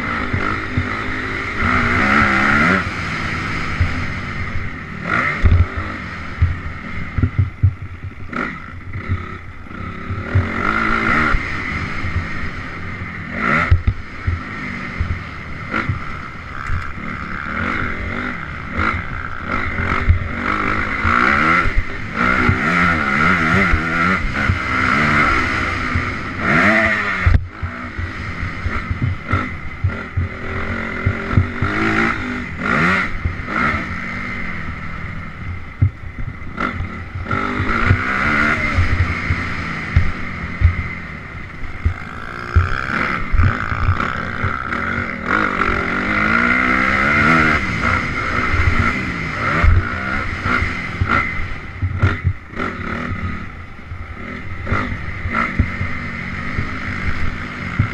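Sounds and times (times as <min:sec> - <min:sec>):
dirt bike engine revving: 0:00.0 - 0:57.9
short thumps and knocks: 0:05.4 - 0:05.7, 0:06.4 - 0:08.2, 0:28.7 - 0:30.3.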